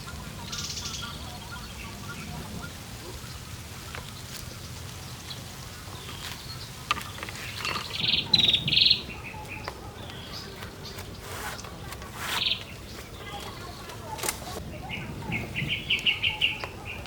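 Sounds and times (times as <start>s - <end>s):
bird buzzy trilled calls: 5.2s - 14.6s.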